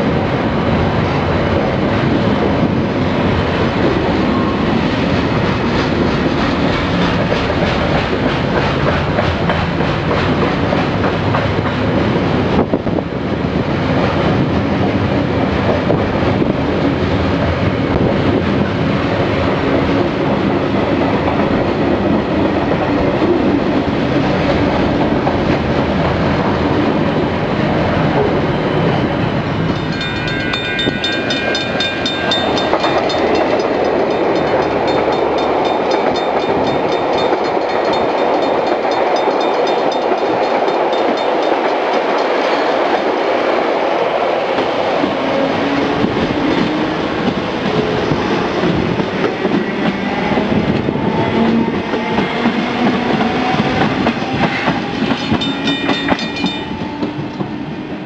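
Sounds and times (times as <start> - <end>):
train wheels clattering on rails: 0.6 - 58.0
high ringing tones: 29.7 - 42.4.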